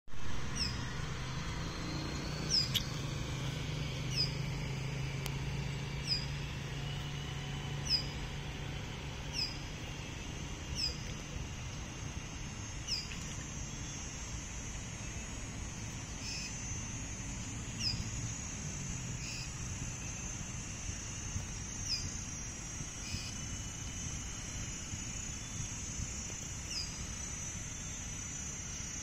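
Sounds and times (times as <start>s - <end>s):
low steady hum: 0.1s - 29.0s
bird calling: 0.5s - 1.2s, 2.3s - 4.8s, 7.7s - 8.4s, 9.1s - 14.4s, 15.0s - 16.7s, 17.4s - 18.4s, 19.1s - 23.5s.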